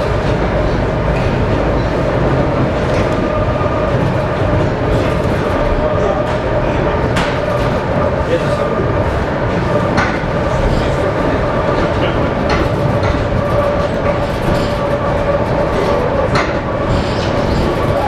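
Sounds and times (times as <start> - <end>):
train rumble with whine: 0.0 - 18.0
wheels knocking on rail joints: 0.0 - 18.0.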